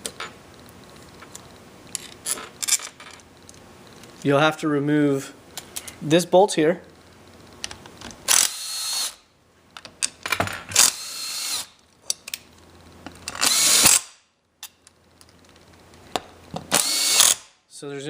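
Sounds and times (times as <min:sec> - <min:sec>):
power drill motor whine: 0:08.3 - 0:09.2, 0:10.8 - 0:11.7, 0:13.4 - 0:14.0, 0:16.7 - 0:17.4.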